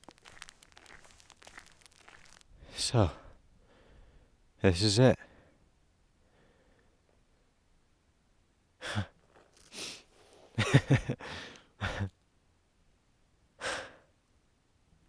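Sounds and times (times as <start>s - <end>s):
man breathing hard: 3.6s - 4.4s, 6.2s - 6.9s, 11.2s - 11.7s, 13.6s - 14.1s.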